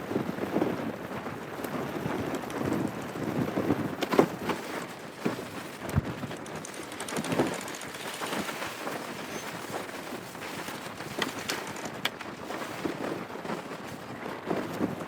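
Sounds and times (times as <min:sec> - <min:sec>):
wind: 0:00.0 - 0:15.0
water noise: 0:04.5 - 0:13.0.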